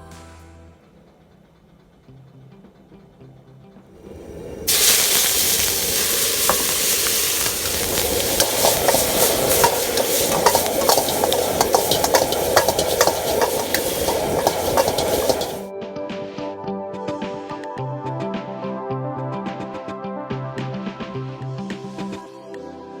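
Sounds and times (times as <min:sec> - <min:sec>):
food sizzling in hot oil: 0:04.0 - 0:15.7
metal utensil scraping pan: 0:04.7 - 0:15.7.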